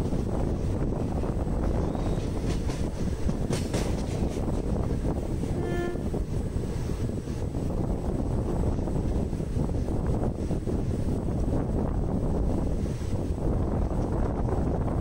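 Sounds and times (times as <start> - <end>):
train wheels rumbling on rail: 0.0 - 15.0
sharp track clacks: 2.1 - 5.6
short train horn note: 5.5 - 6.2.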